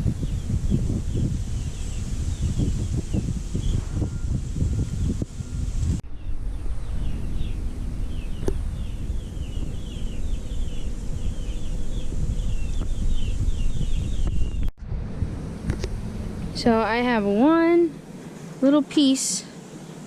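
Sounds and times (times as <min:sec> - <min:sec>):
birds chirping rapidly: 0:00.0 - 0:14.7
low rumble: 0:00.0 - 0:18.1.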